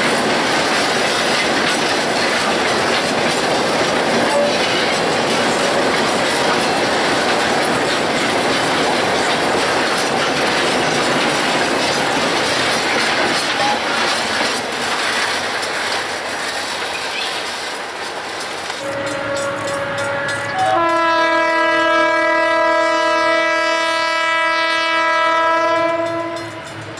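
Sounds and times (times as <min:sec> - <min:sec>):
train wheels clattering over rail joints: 0:00.0 - 0:23.6, 0:24.9 - 0:26.9
train wheel squeal: 0:04.2 - 0:12.1, 0:15.0 - 0:17.8.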